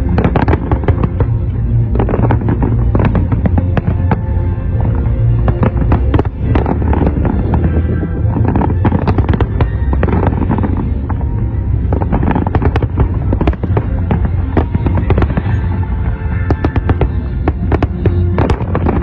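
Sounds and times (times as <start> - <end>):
fireworks bursting and crackling: 0.0 - 19.0
music playing: 0.0 - 19.0.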